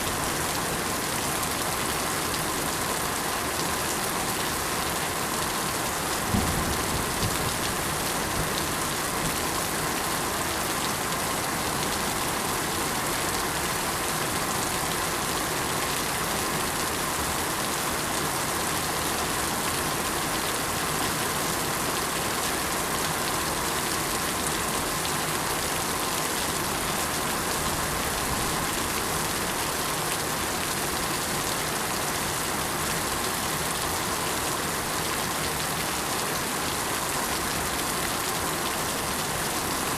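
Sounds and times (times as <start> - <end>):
steady rain falling: 0.0 - 39.9
brief low thump: 6.3 - 7.4.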